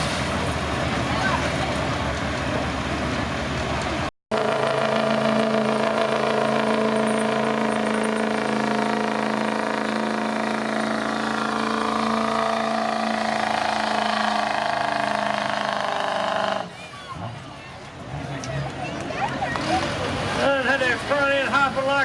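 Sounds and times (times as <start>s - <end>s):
diesel engine at high revs: 0.0s - 17.4s.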